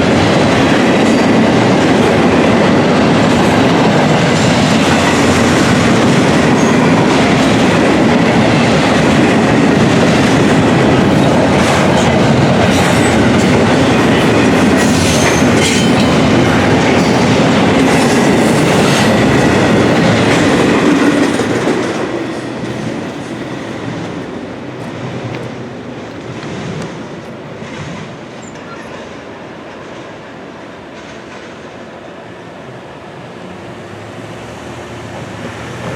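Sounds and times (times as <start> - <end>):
freight train wheels clattering: 0.0 - 30.2.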